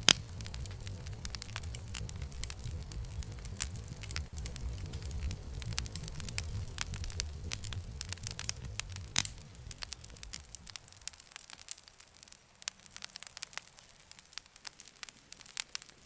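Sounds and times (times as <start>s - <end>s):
low rumble: 0.0s - 11.6s
campfire crackling and popping: 0.0s - 16.0s.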